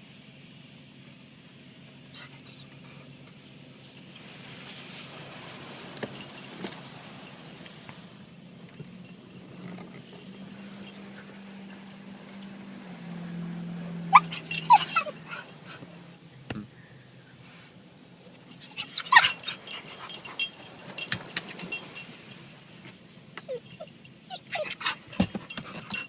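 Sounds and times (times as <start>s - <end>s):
car wash machinery humming: 0.0s - 26.0s
dog whining and yipping: 2.1s - 3.1s, 13.6s - 16.1s, 18.4s - 22.0s, 23.4s - 26.0s.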